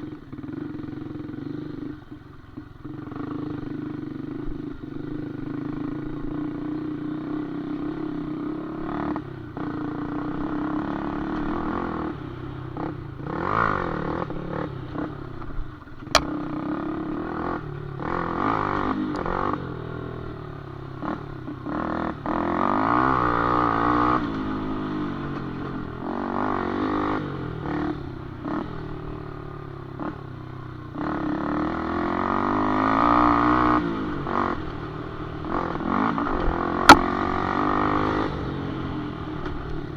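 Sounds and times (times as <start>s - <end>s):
motorcycle engine revving: 0.0s - 39.9s
sharp knock: 36.9s - 37.1s.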